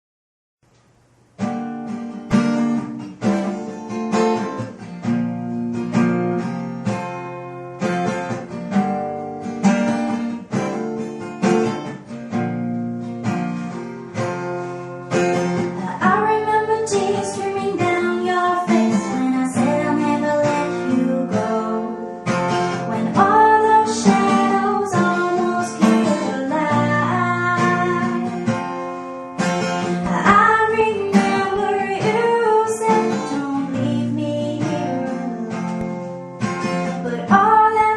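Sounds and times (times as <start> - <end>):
acoustic guitar chords: 0.7 - 37.9
person singing: 15.7 - 28.5, 29.9 - 36.0, 36.9 - 37.9.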